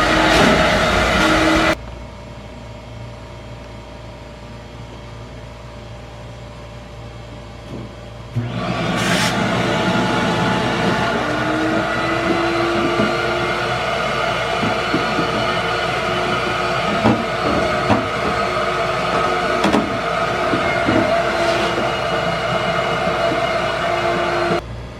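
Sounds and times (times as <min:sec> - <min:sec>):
ice machine running: 0:08.4 - 0:24.6.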